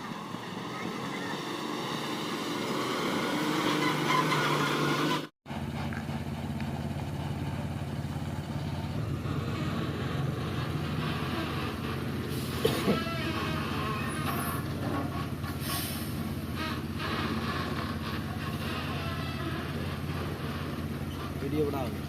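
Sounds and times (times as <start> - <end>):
vehicle engine running: 5.0 - 22.0.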